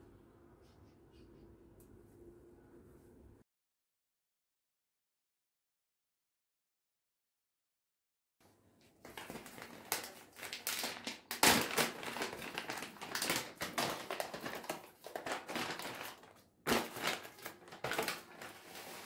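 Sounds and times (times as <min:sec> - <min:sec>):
crinkling and rustling: 0:08.8 - 0:19.0.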